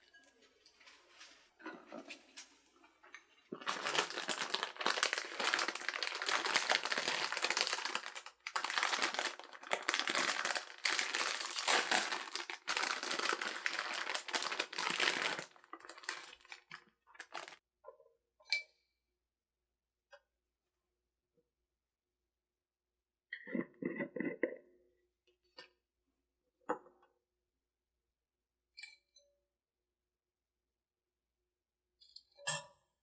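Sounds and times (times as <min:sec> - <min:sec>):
crinkling and rustling: 0:00.4 - 0:17.6.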